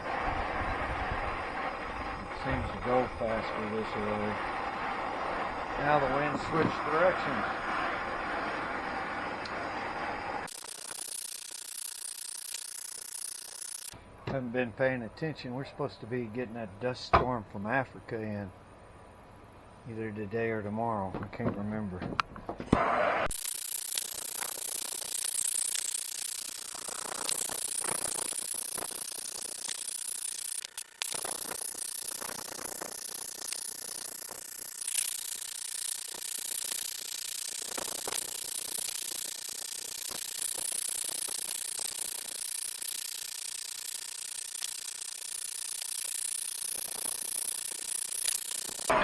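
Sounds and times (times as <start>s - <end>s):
wood crackling: 23.3s - 48.9s.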